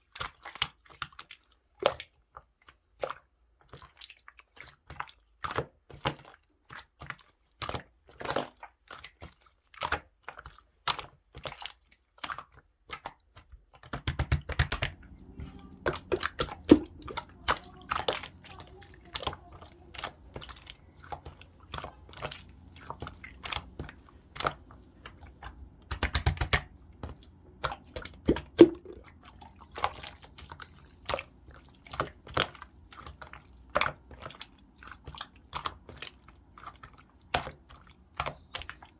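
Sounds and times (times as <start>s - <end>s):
slime sticky clicks and pops: 13.8s - 15.0s, 25.8s - 26.7s.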